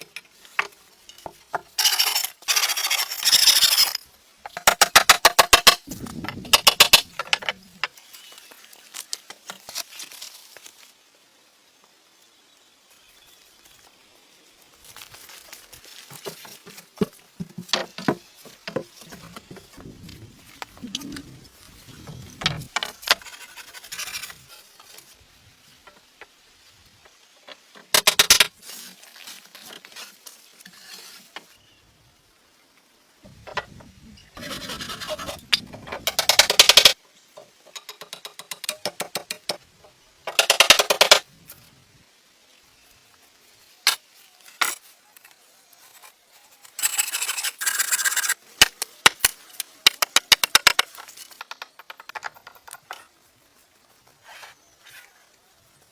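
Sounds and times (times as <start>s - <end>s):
rough scraping strokes: 34.4s - 36.1s.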